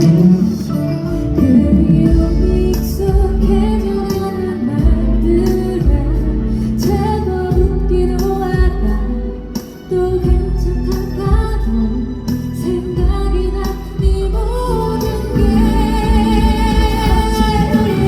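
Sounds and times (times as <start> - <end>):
steady bass: 0.0 - 18.0
woman singing long sliding notes: 10.0 - 18.0.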